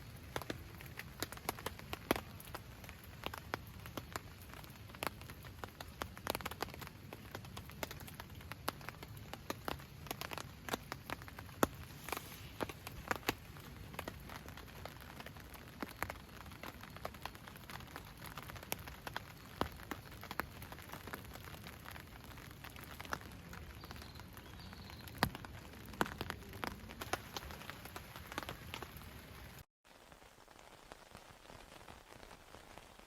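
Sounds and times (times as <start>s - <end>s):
raindrops tapping: 0.0s - 32.5s
steady rain hiss: 0.0s - 33.0s.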